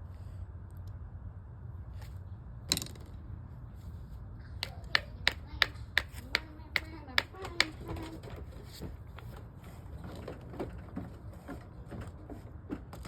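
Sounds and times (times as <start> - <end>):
rock tapping on stone: 4.6 - 7.8.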